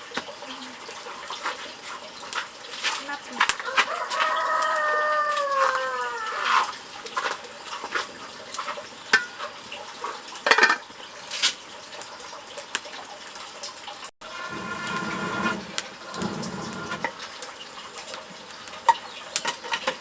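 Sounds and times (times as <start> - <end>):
chicken calling: 3.6 - 6.7.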